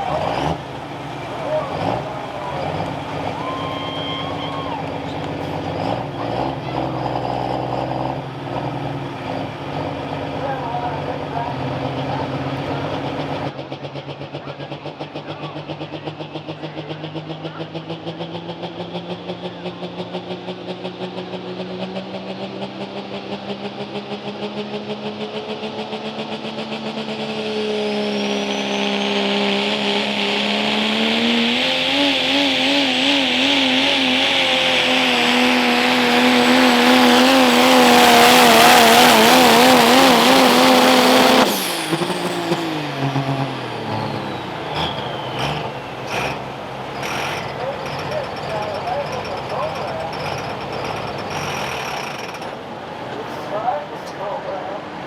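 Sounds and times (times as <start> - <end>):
diesel truck engine under load: 0.0 - 55.0
turbo whistle: 1.4 - 5.6, 27.4 - 37.4, 40.6 - 48.1.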